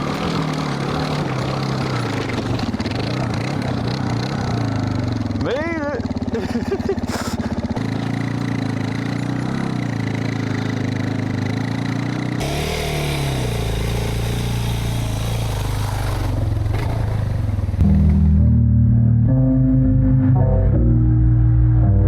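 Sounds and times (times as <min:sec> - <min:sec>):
motorcycle engine revving: 0:00.0 - 0:18.6
music: 0:17.8 - 0:22.0.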